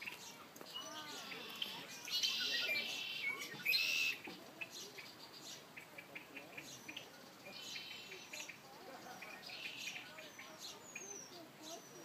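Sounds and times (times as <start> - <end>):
songbirds singing: 0.0 - 12.0
short high bird chirps: 0.7 - 4.2.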